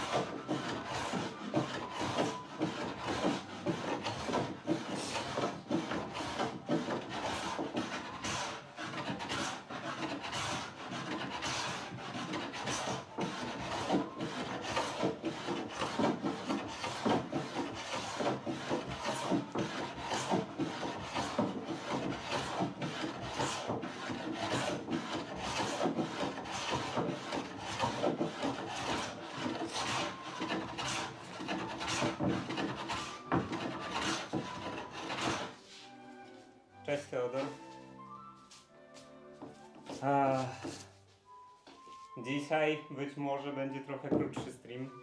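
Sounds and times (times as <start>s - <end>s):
sanding on a wooden door: 0.0s - 35.9s.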